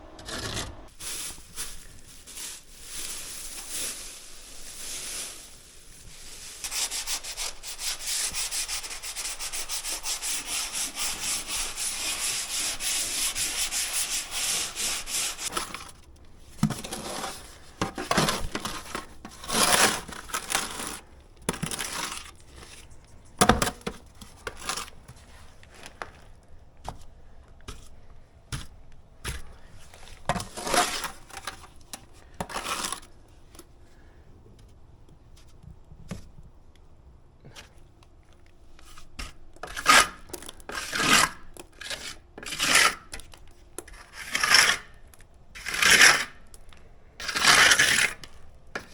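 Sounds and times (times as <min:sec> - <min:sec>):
hand sanding strokes: 0:02.2 - 0:15.5
scrapes and knocks: 0:06.6 - 0:27.1, 0:27.7 - 0:33.1.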